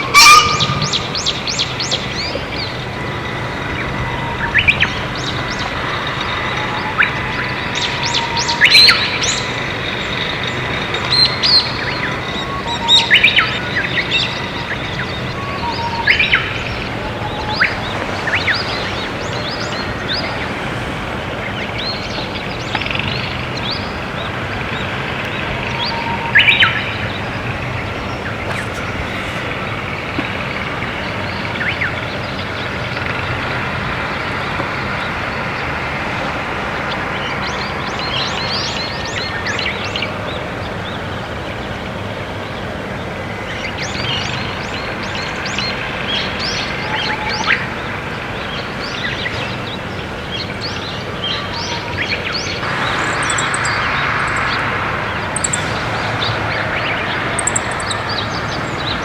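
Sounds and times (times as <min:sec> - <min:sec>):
pheasant two-note call: 0:00.0 - 0:02.1
songbirds chirping and singing: 0:00.0 - 0:59.0.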